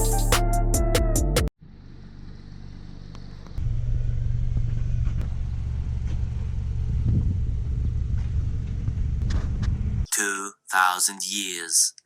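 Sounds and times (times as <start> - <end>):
car road and engine rumble: 1.6 - 10.1.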